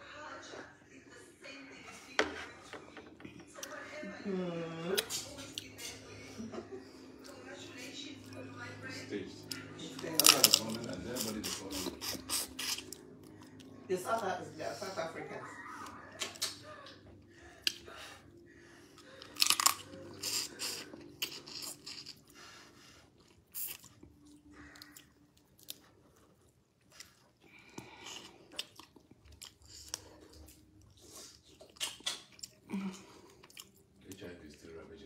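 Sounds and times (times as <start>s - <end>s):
person chewing seafood: 9.4s - 13.8s, 17.5s - 34.3s
crunching and wet mouth clicks: 31.6s - 32.6s.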